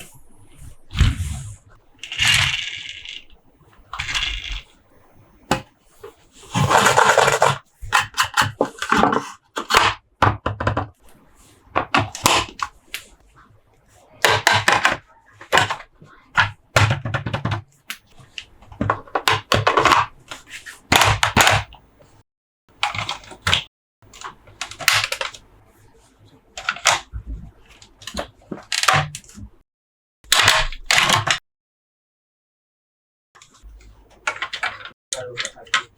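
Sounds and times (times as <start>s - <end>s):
plastic parts clicking: 22.8s - 25.4s, 26.6s - 27.1s.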